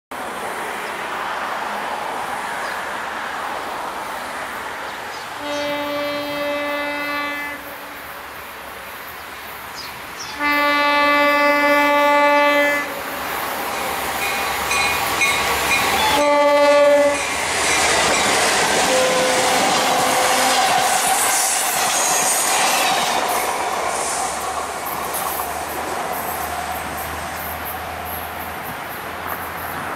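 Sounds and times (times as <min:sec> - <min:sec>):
train engine and wheel noise: 0:00.1 - 0:29.9
locomotive horn blasts: 0:05.4 - 0:07.9, 0:10.4 - 0:13.0, 0:16.0 - 0:17.3, 0:18.8 - 0:20.8.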